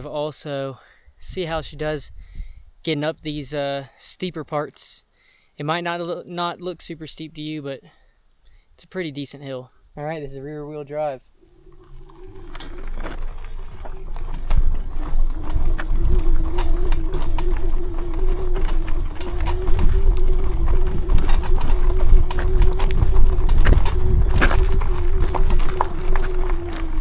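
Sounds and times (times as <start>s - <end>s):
wind rumble on microphone: 1.3s - 2.8s, 11.7s - 27.0s
electric motor whining: 11.4s - 27.0s
tyres clicking and knocking: 11.4s - 27.0s.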